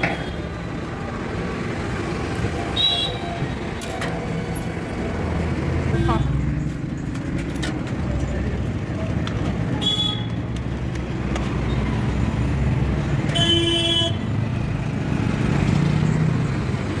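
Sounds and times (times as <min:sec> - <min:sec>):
road traffic rumble: 0:00.0 - 0:17.0
vehicle horn honks: 0:13.3 - 0:14.2.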